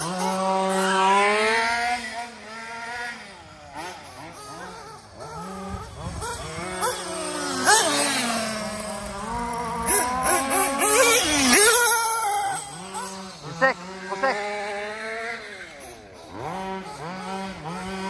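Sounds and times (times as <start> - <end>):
engine throttle blips: 0.0 - 18.0
nitro engine idling: 0.0 - 18.0.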